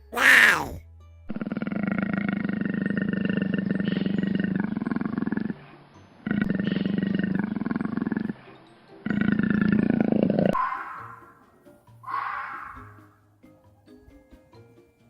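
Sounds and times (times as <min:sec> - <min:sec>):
animal giving deep rasping calls: 0:00.0 - 0:05.6, 0:06.2 - 0:08.4.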